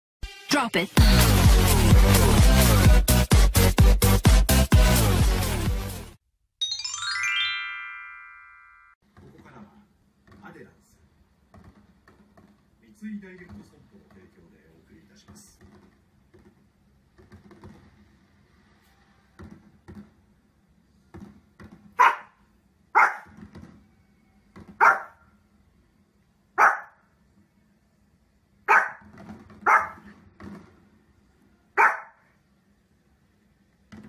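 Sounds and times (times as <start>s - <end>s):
small dog barking: 22.0s - 23.3s, 24.8s - 25.2s, 26.6s - 27.0s, 28.7s - 29.0s, 29.6s - 30.1s, 31.8s - 32.3s.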